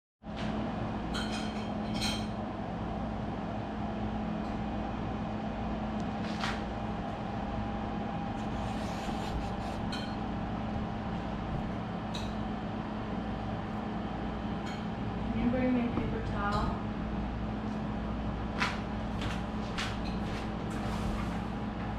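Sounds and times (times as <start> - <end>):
mechanical hum with drone: 0.2 - 21.9.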